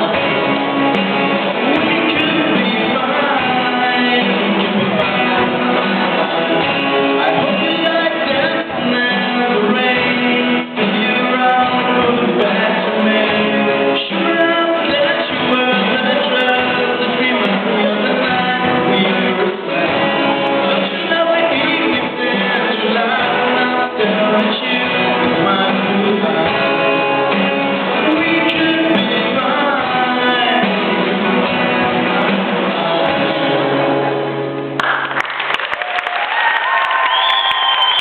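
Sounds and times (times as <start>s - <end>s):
person singing: 0.0s - 34.2s
guitar: 0.0s - 38.0s
school band playing live: 0.0s - 38.0s
audience applauding: 34.8s - 38.0s.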